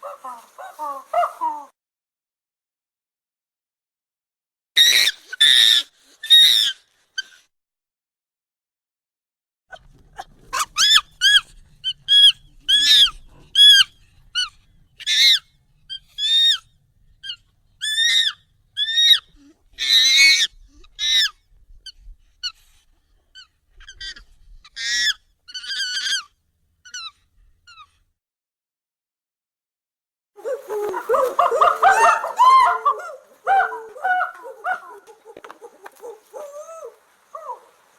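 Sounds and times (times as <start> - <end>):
monkey hoots and squeals: 4.8 - 7.4, 10.5 - 16.6, 17.2 - 21.4, 23.4 - 26.3, 26.9 - 27.9, 30.4 - 37.7
monkey screeches: 4.8 - 7.4, 10.5 - 16.6, 17.2 - 21.4, 23.4 - 26.3, 30.4 - 37.7.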